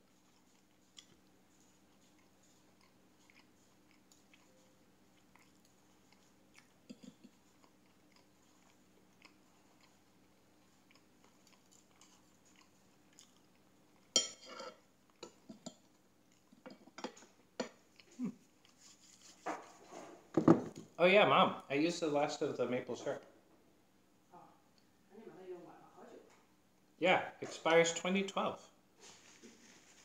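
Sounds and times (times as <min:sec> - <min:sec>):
chewing and eating: 0:00.0 - 0:19.4.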